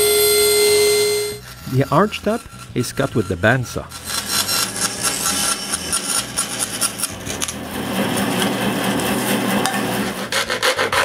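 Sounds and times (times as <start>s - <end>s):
bandsaw cutting plywood: 0.0s - 11.0s.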